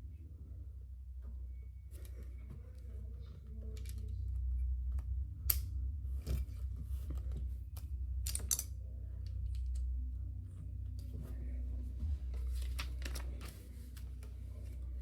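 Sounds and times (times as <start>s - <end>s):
steady low hum: 0.0s - 15.0s
plastic pieces clicking: 8.3s - 8.7s.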